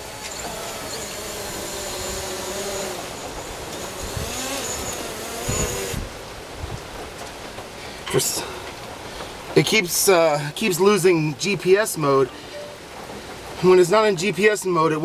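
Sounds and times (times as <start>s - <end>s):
drone propellers whining: 0.0s - 6.2s
wind thuds: 0.0s - 7.8s.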